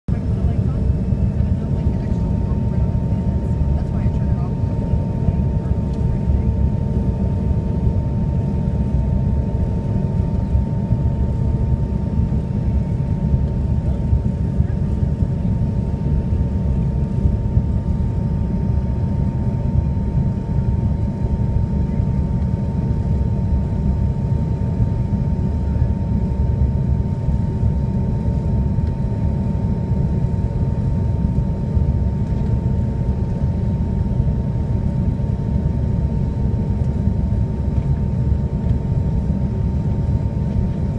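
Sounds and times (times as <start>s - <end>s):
jet cabin rumble in flight: 0.1s - 40.9s.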